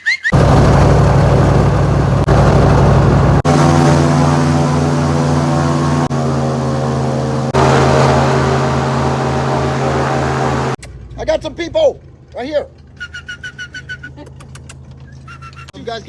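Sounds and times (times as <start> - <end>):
airboat engine and propeller: 0.3 - 11.2.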